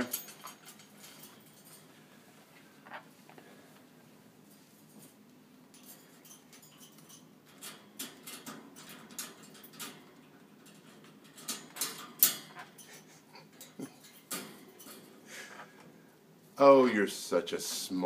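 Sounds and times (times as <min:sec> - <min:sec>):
sharp clack of cage latch: 0:05.8 - 0:12.8
beak rattling metal cage latch: 0:05.8 - 0:12.9.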